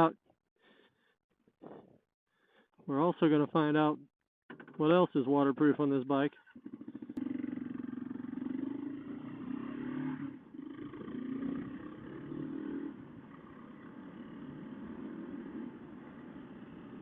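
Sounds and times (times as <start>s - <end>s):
motorcycle engine pulling away: 6.5s - 17.0s.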